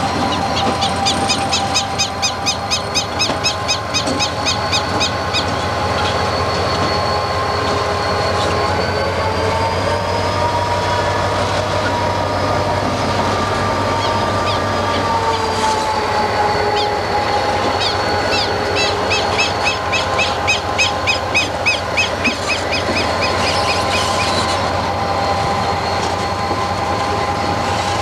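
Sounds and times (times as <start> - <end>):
diesel locomotive engine drone: 0.0 - 28.0.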